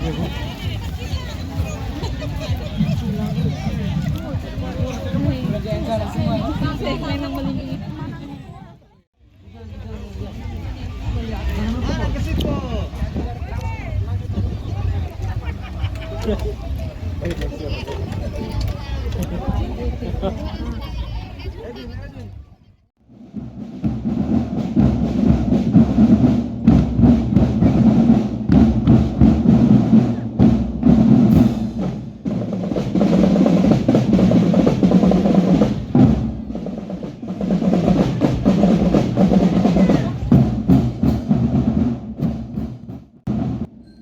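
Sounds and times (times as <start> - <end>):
drum band playing: 0.0 - 8.8, 23.1 - 44.0.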